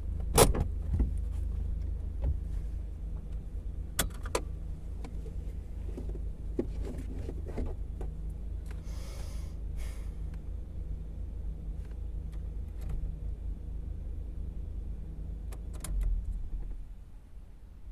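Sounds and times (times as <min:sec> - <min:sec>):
car engine rumble in cabin: 0:00.0 - 0:17.9
short breathy hisses: 0:08.8 - 0:10.2.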